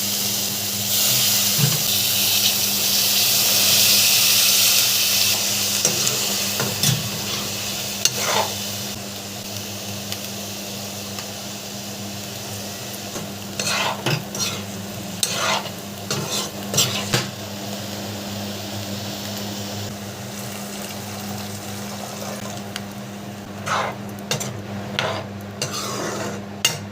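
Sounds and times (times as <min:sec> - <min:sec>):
food sizzling in a pan: 0:00.0 - 0:26.9
spoon scraping a pan: 0:05.8 - 0:08.6, 0:13.2 - 0:17.3, 0:23.6 - 0:26.9.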